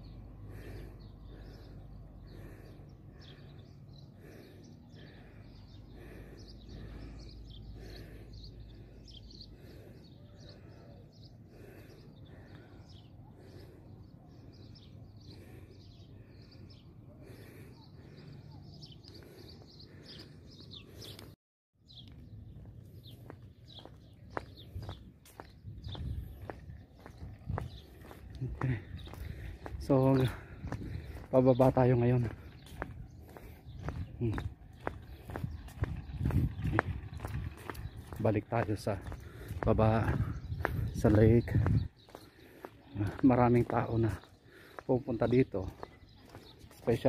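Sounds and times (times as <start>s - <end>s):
birds chirping: 0.0s - 47.0s.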